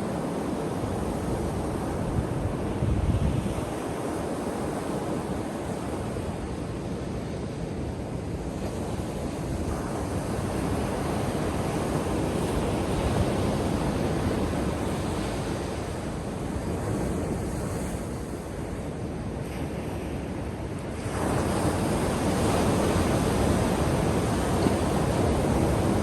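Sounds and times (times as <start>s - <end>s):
ocean surf breaking: 20.9s - 26.0s.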